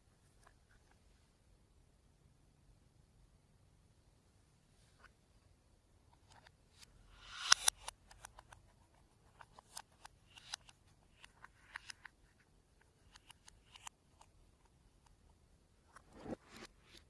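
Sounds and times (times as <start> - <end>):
swish: 16.0 - 17.0.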